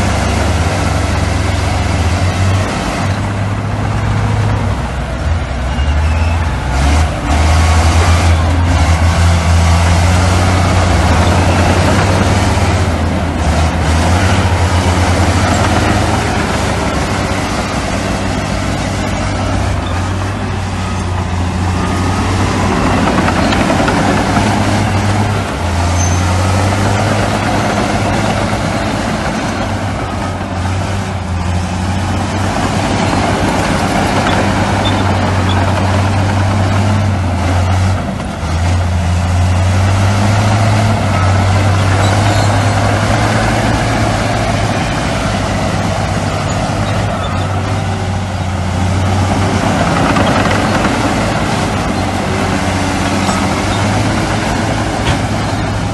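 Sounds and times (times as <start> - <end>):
heavy diesel engines droning: 0.0 - 55.9.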